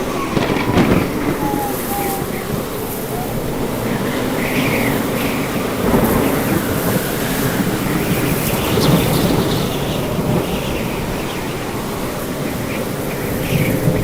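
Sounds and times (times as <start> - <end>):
low thunder: 0.0 - 9.4
rain: 0.0 - 14.0
wind: 0.0 - 14.0.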